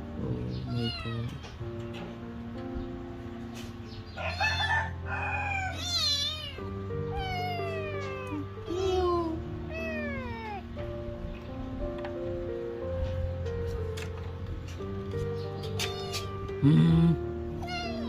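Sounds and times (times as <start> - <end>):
background music: 0.0 - 18.0
kitten meowing: 0.4 - 1.6, 4.2 - 10.8, 15.6 - 18.0.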